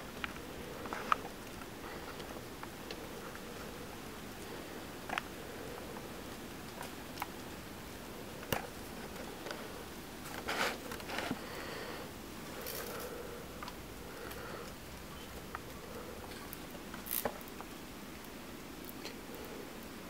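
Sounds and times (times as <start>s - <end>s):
steady hiss: 0.0s - 20.0s
electric snaps and crackles: 16.4s - 19.2s.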